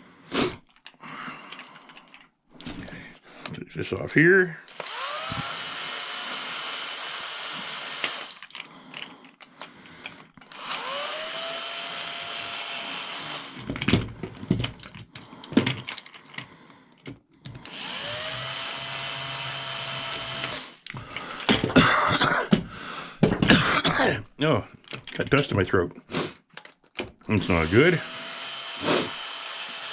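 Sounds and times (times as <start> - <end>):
power drill whining: 4.7 - 9.1, 10.0 - 14.6, 17.5 - 21.7, 27.3 - 29.9
metal parts clattering: 8.2 - 10.7, 13.5 - 16.5.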